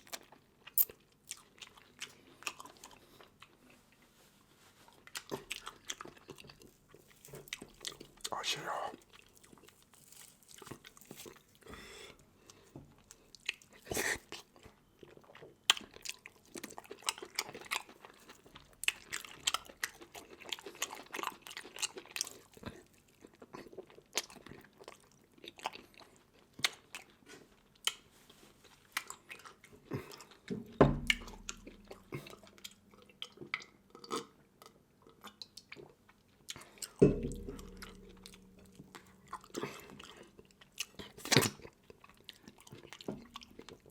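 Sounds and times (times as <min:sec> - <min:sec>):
chewing and crunching seafood: 0:00.0 - 0:43.9
dull thumps: 0:30.5 - 0:31.4, 0:37.0 - 0:38.9.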